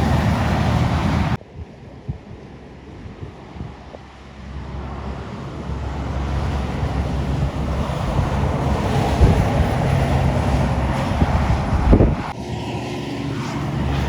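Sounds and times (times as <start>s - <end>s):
heavy truck diesel engine: 0.0s - 1.4s, 4.0s - 14.0s
tyre and road noise: 0.0s - 1.4s, 2.3s - 14.0s.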